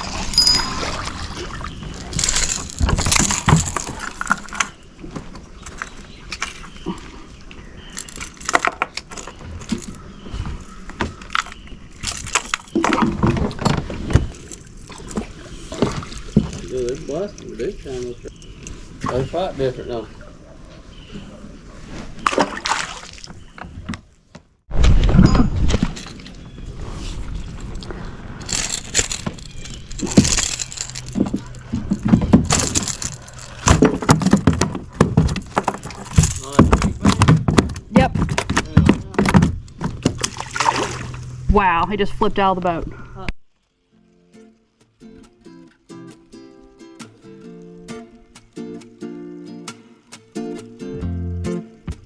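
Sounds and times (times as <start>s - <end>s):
fishing gear knocking and rattling: 0.0s - 17.2s, 27.4s - 41.5s.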